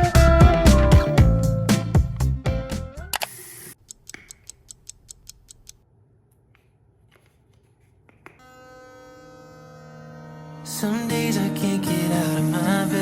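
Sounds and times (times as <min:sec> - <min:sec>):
music: 0:00.0 - 0:03.1, 0:10.3 - 0:13.0
run of light clicks: 0:03.2 - 0:05.8.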